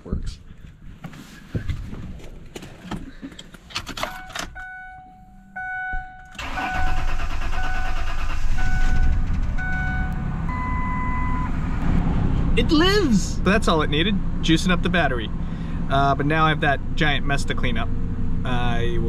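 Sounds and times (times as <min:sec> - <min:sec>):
truck engine starting and running: 0:02.6 - 0:19.0
warning chime beeping: 0:04.2 - 0:11.5.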